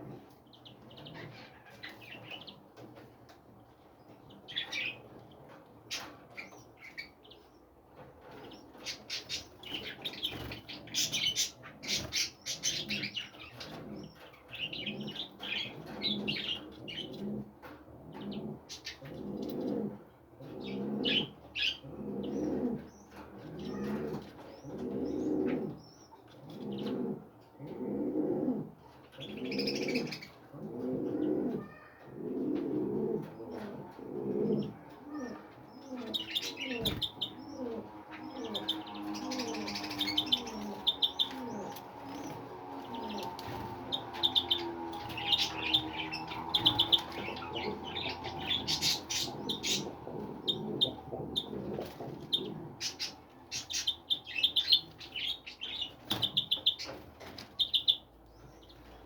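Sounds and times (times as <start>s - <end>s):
low cooing calls: 8.3s - 58.5s
wing flutters: 36.0s - 53.8s
high bird chirps: 36.1s - 51.5s.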